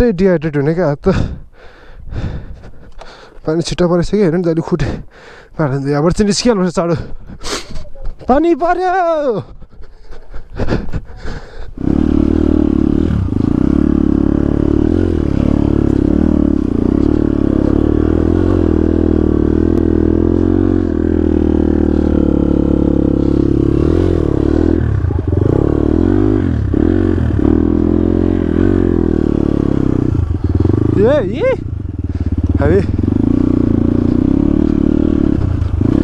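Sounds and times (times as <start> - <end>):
dirt bike engine running: 11.8 - 36.0.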